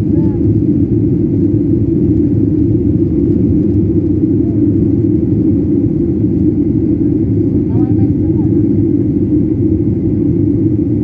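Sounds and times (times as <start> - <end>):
jet airliner cabin rumble: 0.0 - 11.0.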